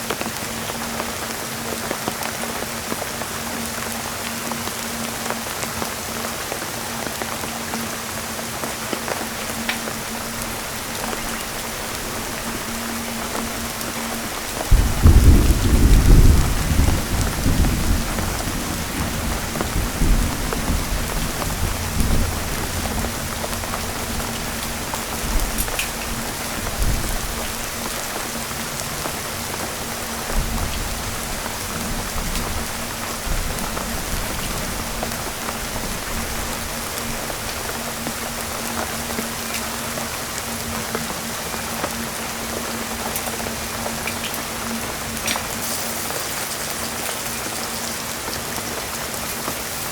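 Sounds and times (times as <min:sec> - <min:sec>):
heavy rain: 0:00.0 - 0:49.9
thunder rumble: 0:09.3 - 0:40.3.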